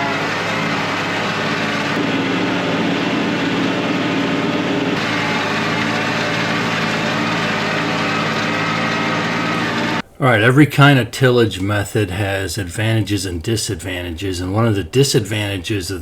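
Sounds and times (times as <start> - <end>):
tractor diesel engine under load: 0.0 - 10.4.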